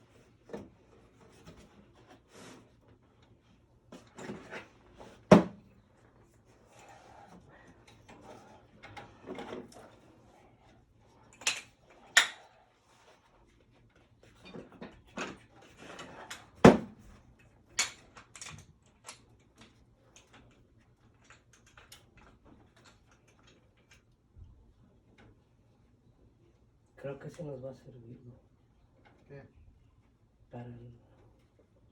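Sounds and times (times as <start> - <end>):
quiet rattling and shuffling: 0.0 - 31.9.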